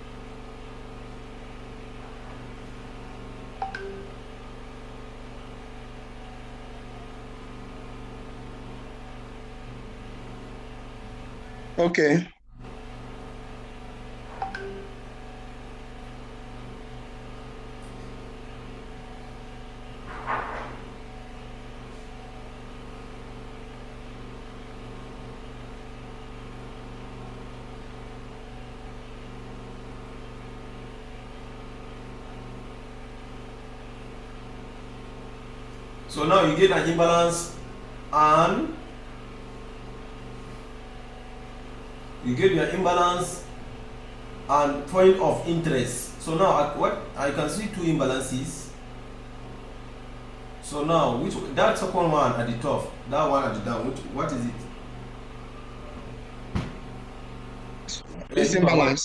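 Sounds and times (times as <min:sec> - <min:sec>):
machine hum: 0:00.0 - 0:59.0
low hum of even tones: 0:03.4 - 0:22.6.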